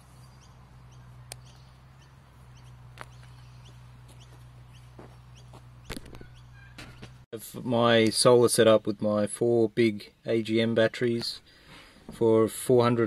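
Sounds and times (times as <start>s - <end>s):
faint bird chirps: 0.0s - 7.2s
steady low hum: 0.0s - 7.7s.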